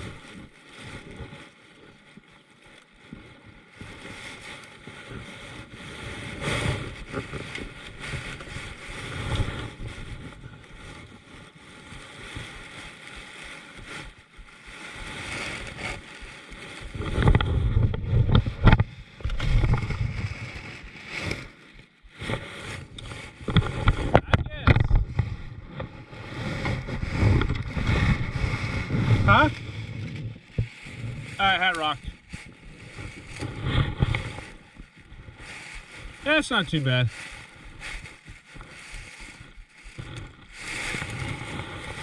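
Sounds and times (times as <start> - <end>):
water noise from kayak: 0.0 - 42.0
wind buffeting microphone: 23.0 - 38.6.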